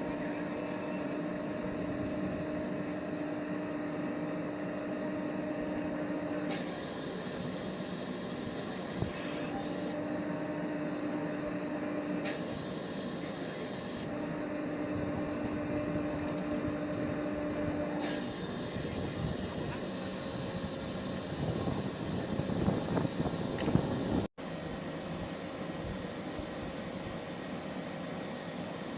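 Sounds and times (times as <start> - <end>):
engine machinery drone: 0.0 - 24.3
humming tone: 9.2 - 12.3.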